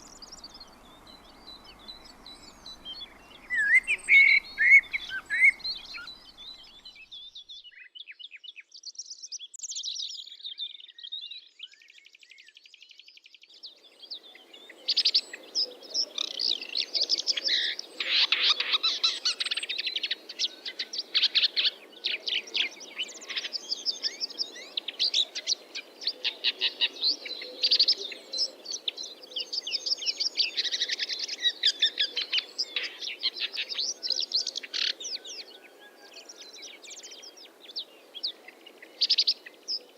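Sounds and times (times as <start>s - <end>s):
bird trill: 0.0s - 7.2s
low background noise: 0.0s - 7.3s
small birds chirping: 0.0s - 39.9s.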